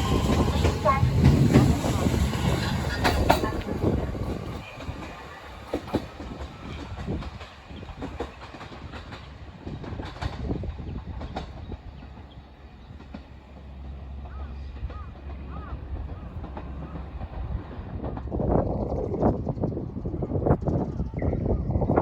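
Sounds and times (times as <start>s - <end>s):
train wheels clacking on rails: 0.0s - 18.8s.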